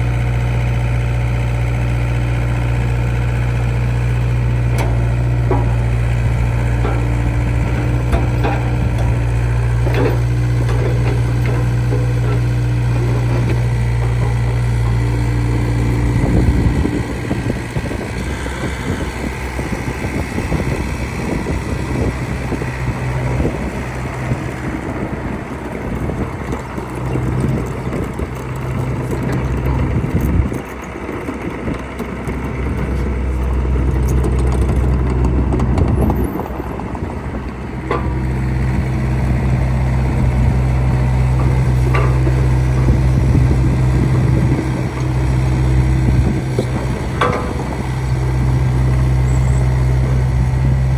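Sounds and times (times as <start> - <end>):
excavator diesel engine: 0.0 - 50.9
metal clanks: 4.6 - 18.2, 40.0 - 50.1.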